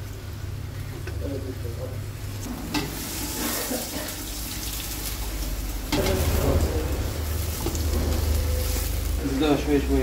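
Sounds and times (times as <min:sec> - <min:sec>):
food sizzling in hot oil: 0:02.2 - 0:10.0.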